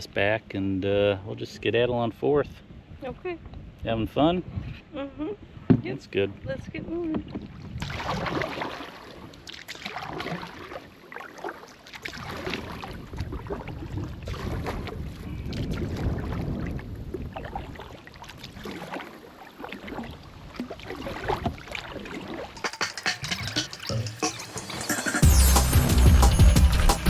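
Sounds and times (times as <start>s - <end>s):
paddle strokes in water: 7.1s - 23.6s
wind buffeting microphone: 12.7s - 17.9s.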